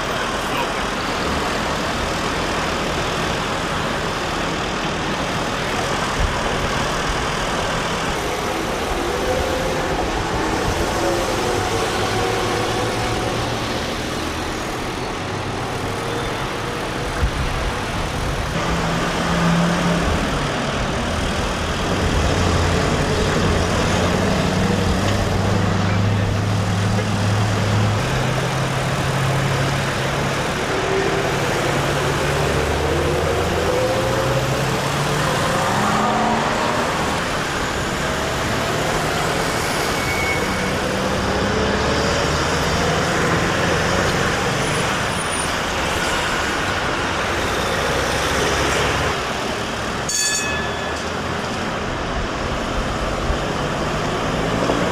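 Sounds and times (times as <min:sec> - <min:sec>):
heavy road vehicles rumbling: 0:00.0 - 0:54.9.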